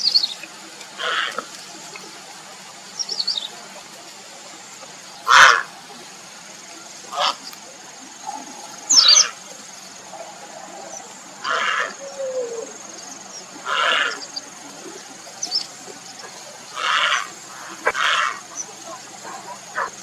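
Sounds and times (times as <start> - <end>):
heron croaking calls: 0.0 - 1.6, 5.2 - 5.8, 7.1 - 7.6, 8.2 - 12.8, 13.6 - 14.4, 16.1 - 20.0.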